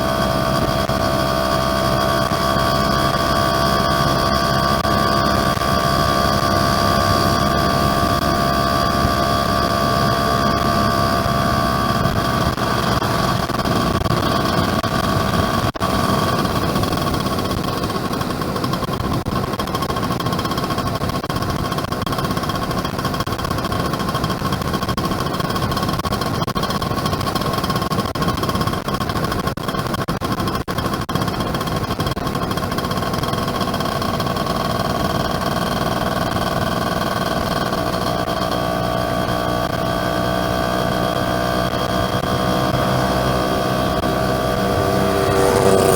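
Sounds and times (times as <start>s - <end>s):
wind noise: 0.0s - 29.0s
two-stroke motorcycle engine: 0.0s - 45.9s
road noise: 32.6s - 45.9s.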